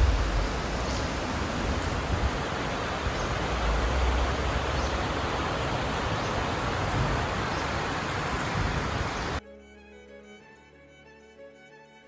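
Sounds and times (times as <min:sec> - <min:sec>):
low rumble: 0:00.0 - 0:05.0
outdoor ambience hiss: 0:00.0 - 0:09.4.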